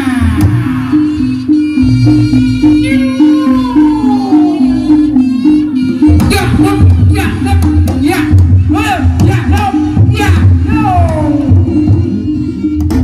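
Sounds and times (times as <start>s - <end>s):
gliding melody line: 0.8s - 12.9s
drumming: 6.0s - 13.0s.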